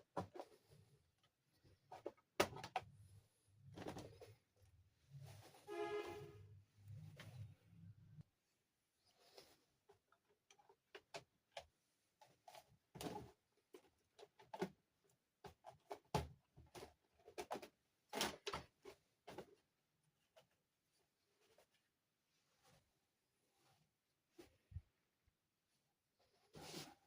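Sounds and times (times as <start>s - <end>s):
rustling scrapes: 3.9s - 7.8s, 26.2s - 27.0s.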